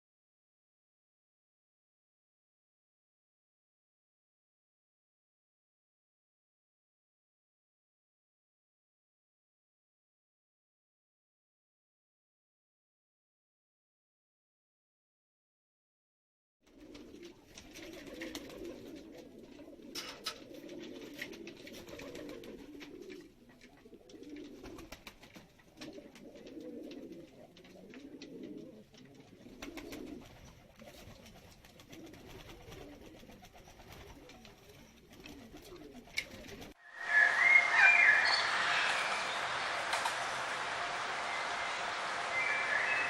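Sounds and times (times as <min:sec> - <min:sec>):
bird cooing: 0:16.7 - 0:24.9, 0:25.8 - 0:30.3, 0:31.9 - 0:39.6
high-pitched bird chirping: 0:36.8 - 0:39.4.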